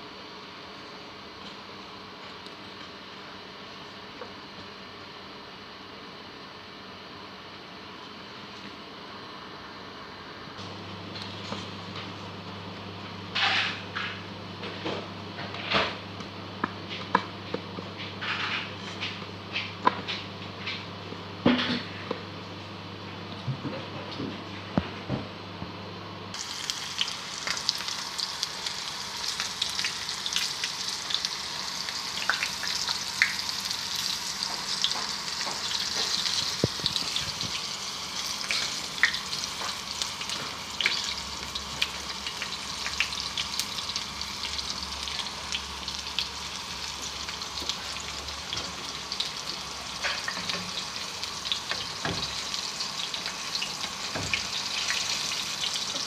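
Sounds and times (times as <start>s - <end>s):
chicken frying in hot oil: 11.2s - 16.1s, 16.8s - 20.8s, 26.3s - 56.0s.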